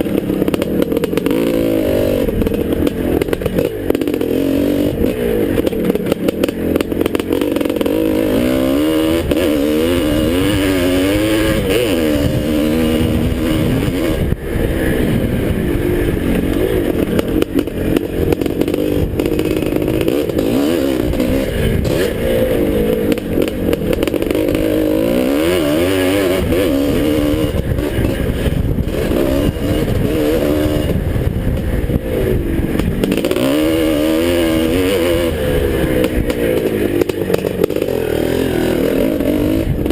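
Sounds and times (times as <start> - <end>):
motocross bike engine revving: 0.0 - 39.9
rough rushing noise: 0.0 - 39.9.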